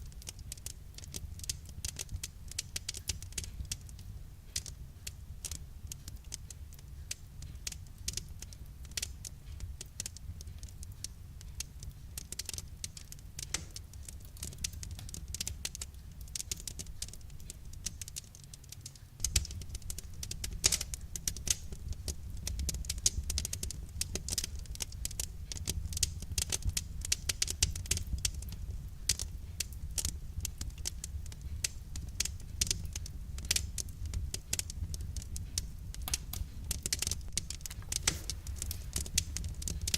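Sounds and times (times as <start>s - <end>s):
wood fire crackling: 0.0s - 39.9s
low steady rumble: 19.2s - 39.9s.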